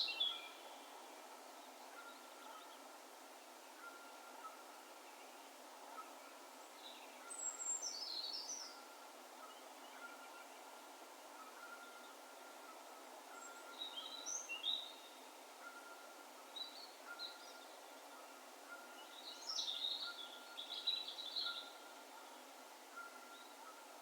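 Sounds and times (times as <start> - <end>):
small bird singing: 0.0 - 0.7, 13.4 - 15.2, 18.9 - 22.4
faint background hiss: 0.0 - 24.0.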